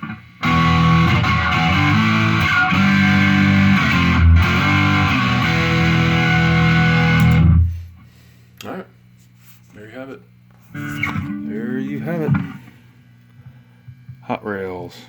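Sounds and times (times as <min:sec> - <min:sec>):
heavily distorted electric guitar chords: 0:00.0 - 0:07.8, 0:10.7 - 0:12.7.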